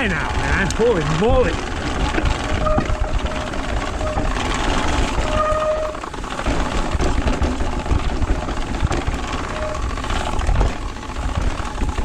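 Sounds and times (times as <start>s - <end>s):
bike tyres rattling on dirt: 0.0s - 12.0s
bike brakes squealing: 2.4s - 6.1s, 9.4s - 10.4s.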